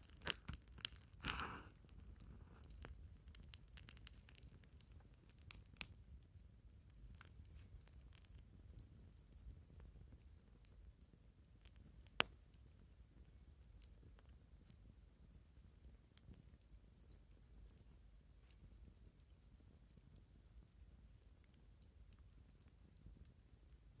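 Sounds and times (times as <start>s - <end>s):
campfire crackling and popping: 0.0s - 6.1s, 6.8s - 8.8s
crickets chirping: 0.0s - 24.0s.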